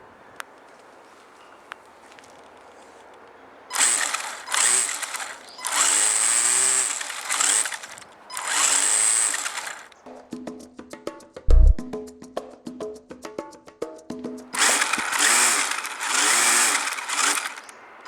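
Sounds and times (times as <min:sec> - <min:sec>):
small motor buzzing against can: 0:03.7 - 0:10.0, 0:14.6 - 0:18.0.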